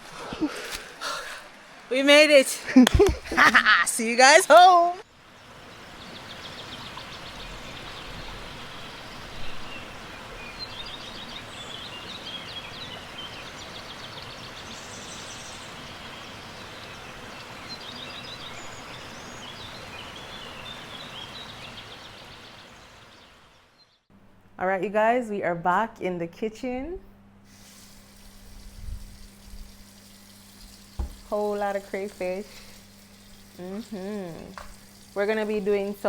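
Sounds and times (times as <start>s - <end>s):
birds chirping and trilling: 3.6s - 24.0s, 30.7s - 36.0s.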